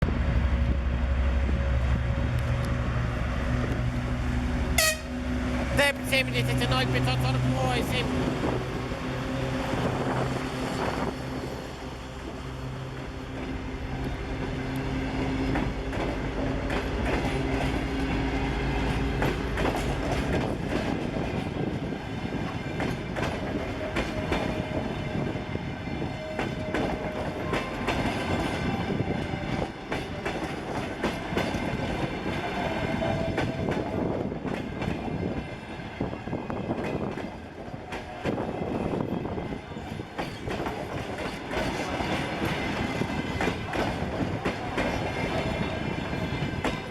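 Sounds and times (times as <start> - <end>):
diesel locomotive engine hum: 0.0 - 46.9
train wheels clacking on rail joints: 13.3 - 46.9.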